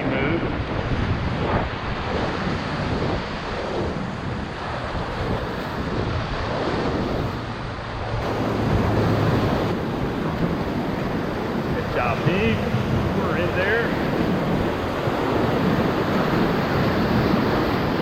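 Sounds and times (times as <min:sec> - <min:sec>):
whitewater rushing: 0:00.0 - 0:18.0
wind noise on microphone: 0:00.0 - 0:18.0.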